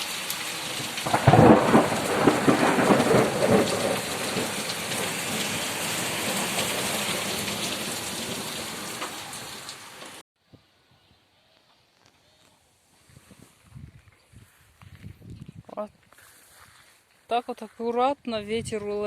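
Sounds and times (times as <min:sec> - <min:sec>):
heavy rain pouring: 0:00.0 - 0:10.2
low thunder rumble: 0:01.0 - 0:08.9.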